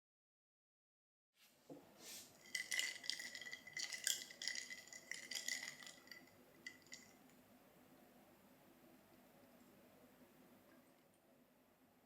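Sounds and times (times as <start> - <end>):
containers clattering and clinking: 2.3 - 7.3.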